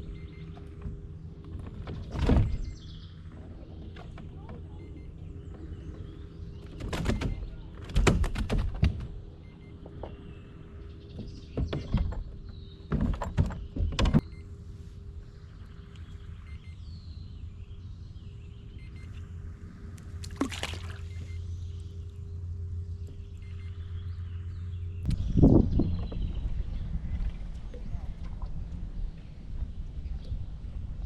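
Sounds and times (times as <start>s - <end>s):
steady low hum: 0.0s - 31.0s
sharp knocks and clatters: 11.1s - 14.2s.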